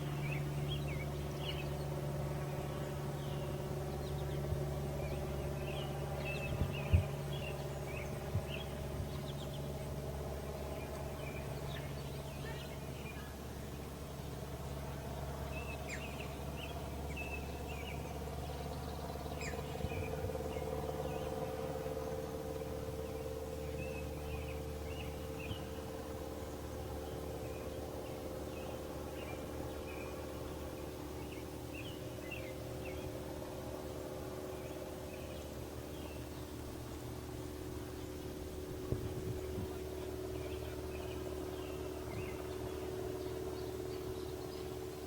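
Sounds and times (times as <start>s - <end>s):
small birds chirping: 0.0s - 21.4s, 22.0s - 26.0s, 26.9s - 33.2s, 34.5s - 45.0s
low droning hum: 0.0s - 45.0s.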